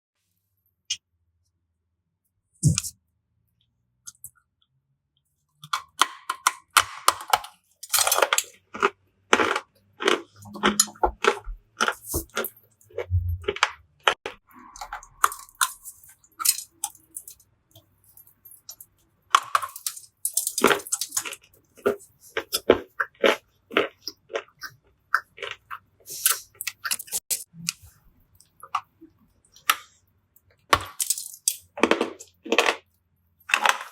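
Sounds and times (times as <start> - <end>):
dry clay crunching and cracking: 5.6 - 17.8, 18.6 - 29.9.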